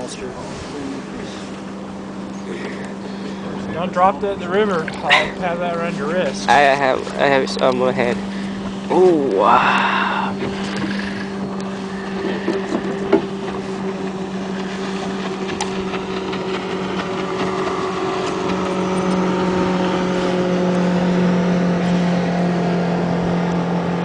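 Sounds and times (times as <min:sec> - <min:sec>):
motorboat engine humming: 0:00.0 - 0:24.0.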